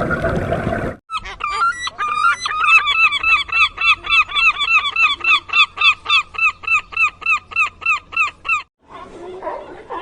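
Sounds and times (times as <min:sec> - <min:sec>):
fowl calling rapidly: 0:01.1 - 0:08.7.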